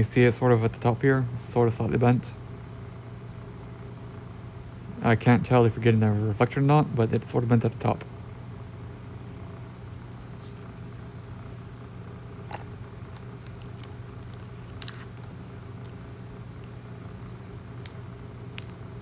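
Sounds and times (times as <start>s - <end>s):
steady low hum: 0.0s - 19.0s
trading cards clicking: 12.5s - 16.0s, 17.8s - 18.8s.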